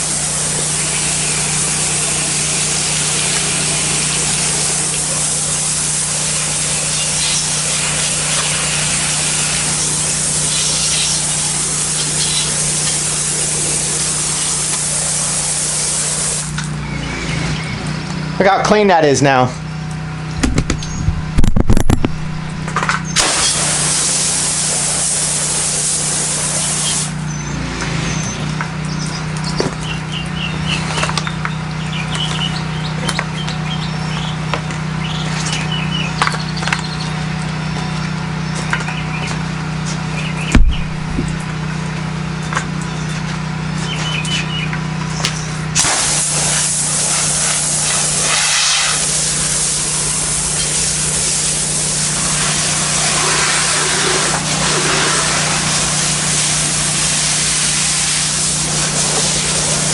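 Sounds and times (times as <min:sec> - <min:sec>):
spray wand hissing: 0:00.0 - 0:16.7, 0:23.2 - 0:27.2, 0:45.8 - 0:59.9
pressure washer engine running: 0:00.0 - 0:59.9
sharp knock: 0:40.5 - 0:41.5.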